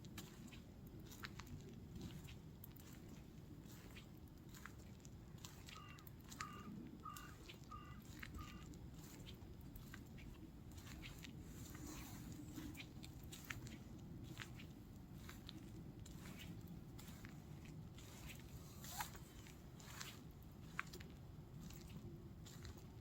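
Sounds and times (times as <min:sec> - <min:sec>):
footsteps crunching on path: 0:00.1 - 0:23.0
bird calls: 0:05.6 - 0:08.7.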